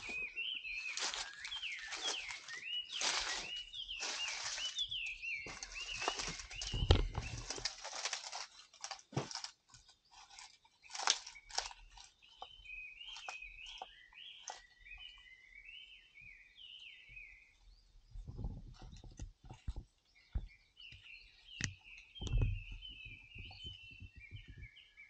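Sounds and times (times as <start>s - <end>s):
crunching and rustling: 0.0s - 15.0s.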